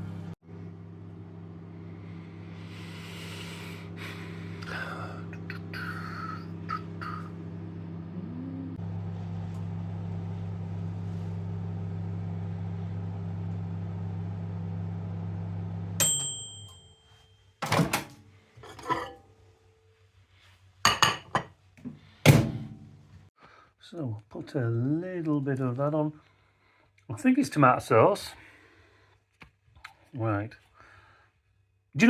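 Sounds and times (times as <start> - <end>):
microwave oven humming: 0.0 - 18.2.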